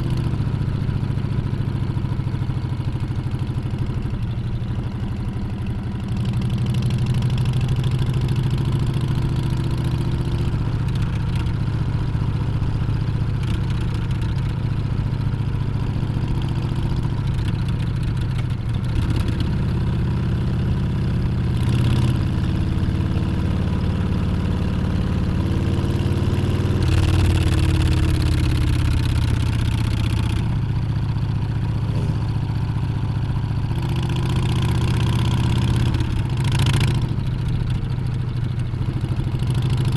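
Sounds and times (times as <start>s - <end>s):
motorcycle engine revving: 21.5s - 37.9s.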